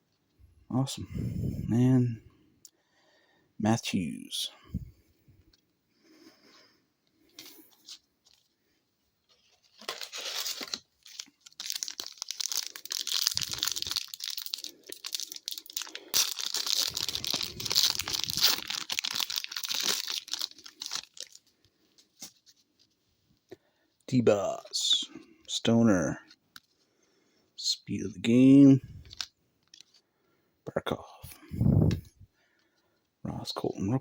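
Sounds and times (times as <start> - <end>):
wrapper tearing and crinkling: 9.4 - 21.5.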